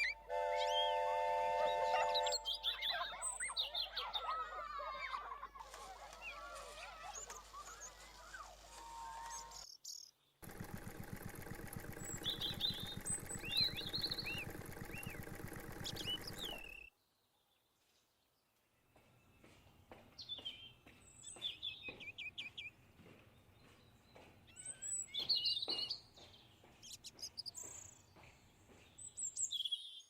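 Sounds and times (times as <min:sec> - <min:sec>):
small birds chirping: 0:01.6 - 0:30.0
low pulsing hum: 0:10.4 - 0:16.8.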